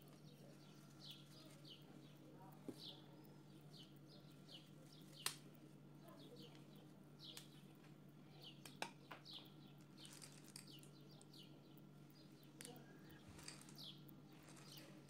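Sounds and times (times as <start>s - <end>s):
steady low hum: 0.0s - 15.0s
faint bird chirps: 6.0s - 15.0s.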